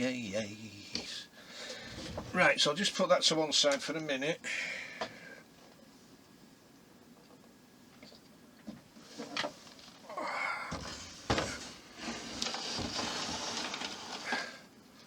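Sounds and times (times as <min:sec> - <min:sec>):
scraping and rustling: 0:10.7 - 0:14.6.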